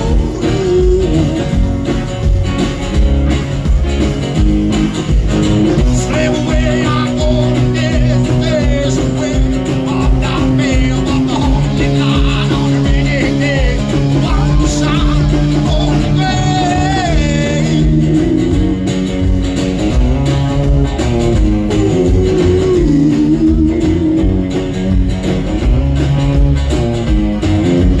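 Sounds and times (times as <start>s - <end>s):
electric guitar: 0.0s - 28.0s
rockabilly band playing live: 0.0s - 28.0s.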